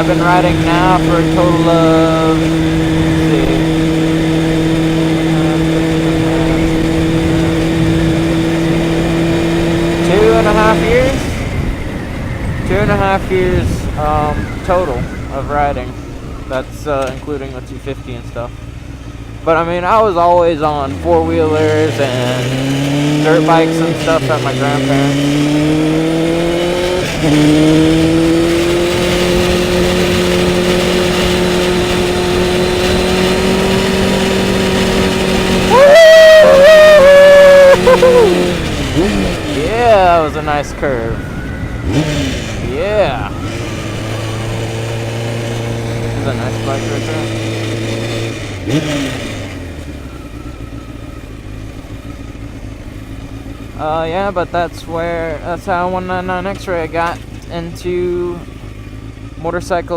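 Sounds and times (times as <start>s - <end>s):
motorcycle engine running: 0.0s - 59.9s
wind and road noise: 0.0s - 59.9s
wind rush over helmet: 27.0s - 46.2s.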